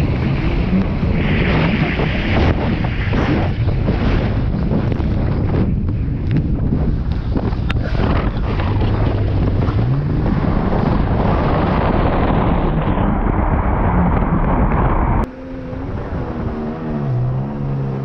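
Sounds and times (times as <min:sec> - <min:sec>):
wind buffeting microphone: 0:00.0 - 0:18.0
jet ski engine running: 0:04.0 - 0:13.4, 0:14.2 - 0:18.0.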